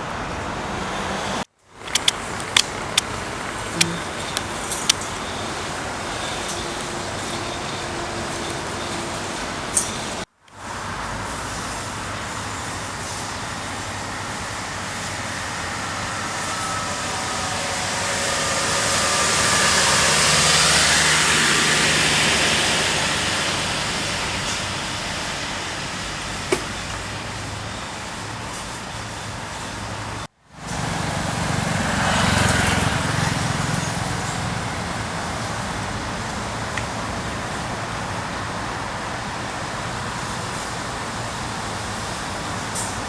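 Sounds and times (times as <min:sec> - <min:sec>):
vehicle passing: 0:00.0 - 0:42.8
road traffic noise: 0:00.0 - 0:43.0
sharp click: 0:01.8 - 0:03.1, 0:26.5 - 0:27.0.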